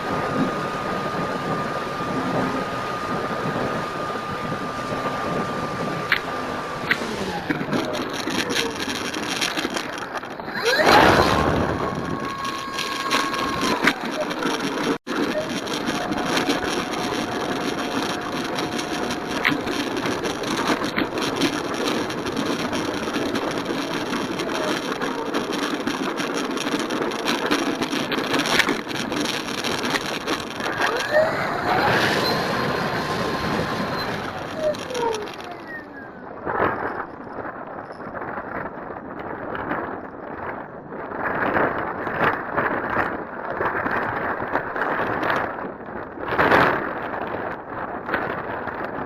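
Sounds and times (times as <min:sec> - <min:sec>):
model plane motor whining: 0:00.0 - 0:37.0
wind rush on microphone: 0:00.0 - 0:49.0.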